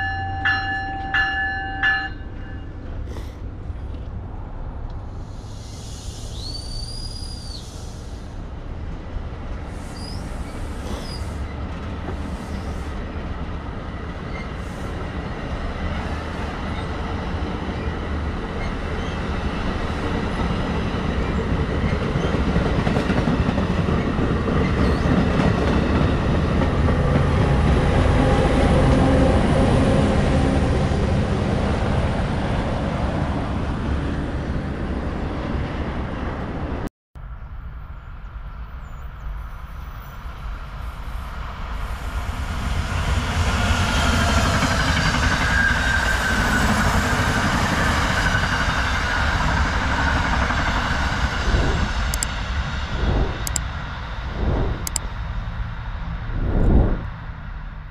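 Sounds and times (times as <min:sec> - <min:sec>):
high wheel squeal: 0:09.8 - 0:11.6, 0:44.8 - 0:47.4
train wheels rumbling: 0:39.2 - 0:57.8.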